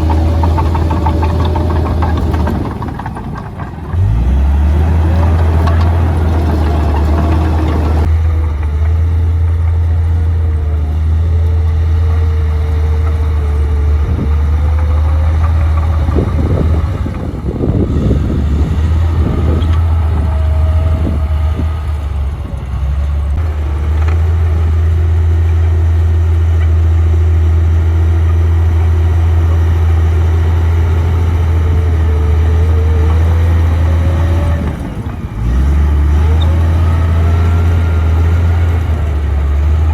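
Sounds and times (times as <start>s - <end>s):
knocking: 0.0s - 8.1s
bulldozer diesel engine running: 0.0s - 39.9s.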